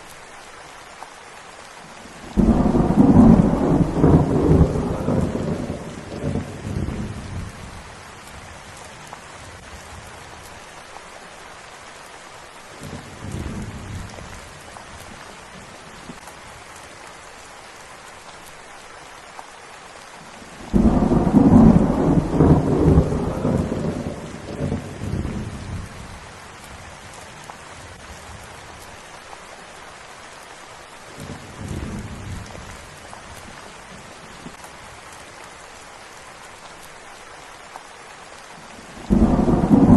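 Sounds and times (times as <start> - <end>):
steady rain falling: 0.0 - 39.9
thunder rumbling: 2.3 - 7.8, 20.6 - 28.4, 39.0 - 39.9.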